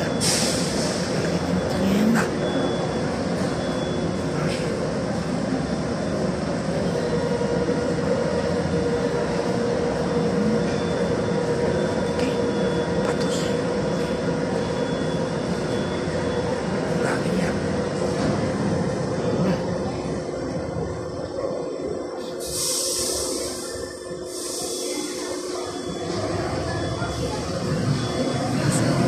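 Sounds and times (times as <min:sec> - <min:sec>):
electric train hum and rumble: 0:00.0 - 0:29.0.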